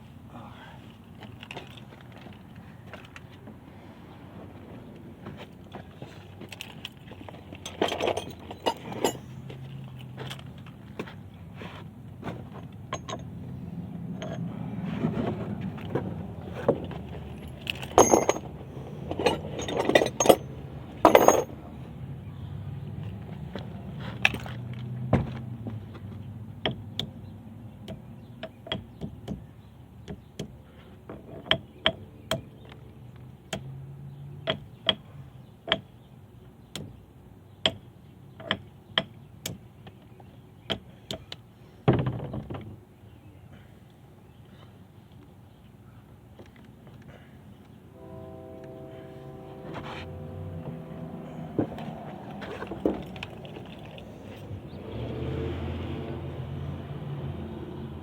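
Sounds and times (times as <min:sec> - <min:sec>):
metal tools clinking: 0:06.2 - 0:10.8, 0:12.6 - 0:13.3, 0:15.9 - 0:21.6, 0:51.3 - 0:54.7
low steady hum: 0:47.1 - 0:54.8.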